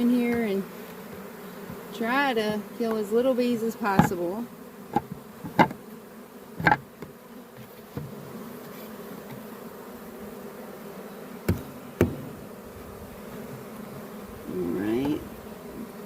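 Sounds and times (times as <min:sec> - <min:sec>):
honeybees buzzing: 0:00.0 - 0:16.0
sharp knocks: 0:04.9 - 0:05.8, 0:06.6 - 0:06.9.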